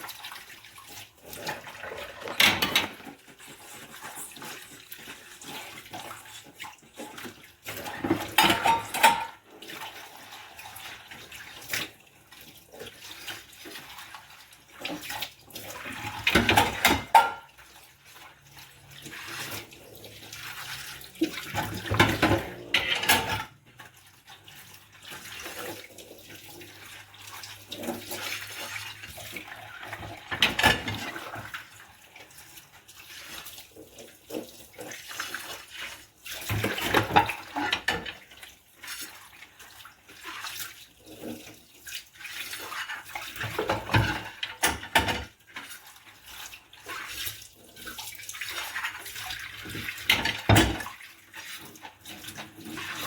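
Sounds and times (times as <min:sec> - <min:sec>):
tap water running and splashing: 0:00.0 - 0:53.0
dishes clattering: 0:01.4 - 0:03.2, 0:07.9 - 0:09.4, 0:16.0 - 0:17.6, 0:21.4 - 0:23.6, 0:30.0 - 0:31.2, 0:36.5 - 0:38.2, 0:43.5 - 0:45.4, 0:50.0 - 0:50.9.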